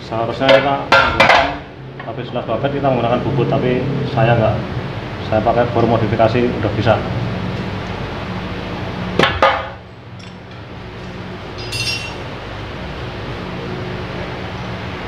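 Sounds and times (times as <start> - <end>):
steady low hum: 9.8 - 15.0
metal parts clinking: 10.2 - 12.4
high metallic ting: 11.6 - 12.4.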